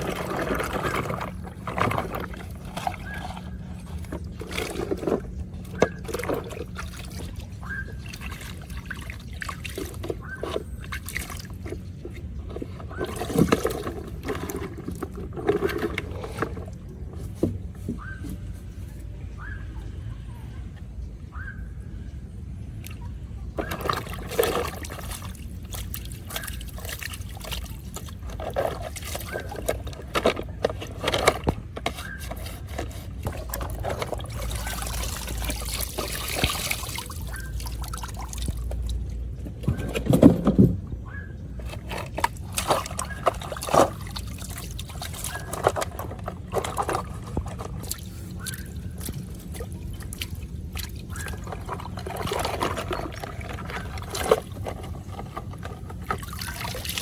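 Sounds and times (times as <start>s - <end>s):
water pouring and trickling: 0.0s - 17.5s, 22.8s - 40.3s, 41.6s - 57.0s
knocks and clicks of objects handled: 25.7s - 34.5s.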